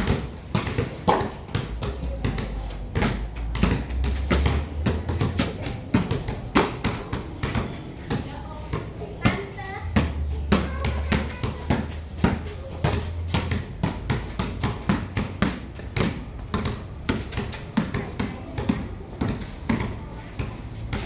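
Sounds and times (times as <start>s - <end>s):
basketballs bouncing on court: 0.0s - 21.0s.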